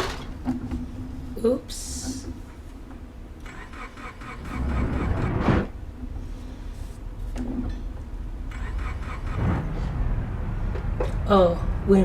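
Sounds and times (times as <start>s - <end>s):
car engine revving: 3.4s - 5.8s, 8.4s - 12.0s.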